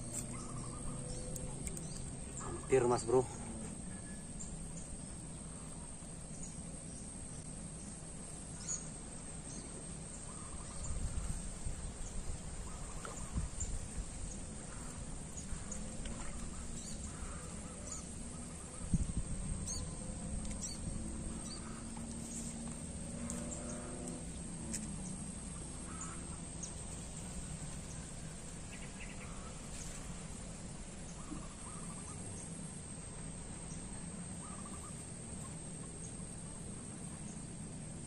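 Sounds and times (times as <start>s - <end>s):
faint bird calls: 0.0s - 4.5s, 9.5s - 11.4s, 12.6s - 13.8s, 14.6s - 30.3s, 31.1s - 32.6s, 33.6s - 36.2s
low background hum: 0.0s - 38.0s.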